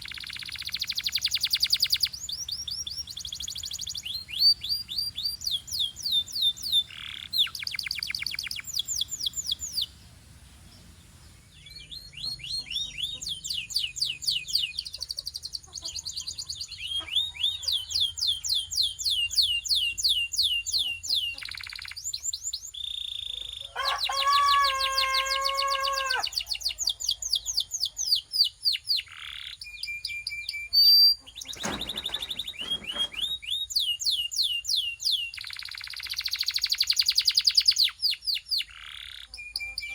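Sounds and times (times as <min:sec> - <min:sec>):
canary trilling: 0:00.0 - 0:10.0, 0:22.8 - 0:27.0.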